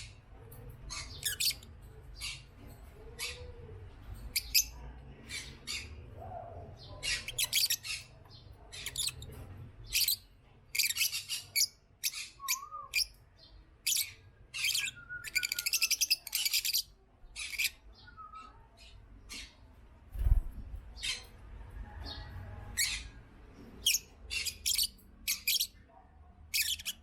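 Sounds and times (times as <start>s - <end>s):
lovebirds chirping: 0.9s - 2.5s, 3.1s - 19.6s, 22.0s - 25.8s, 26.5s - 27.0s.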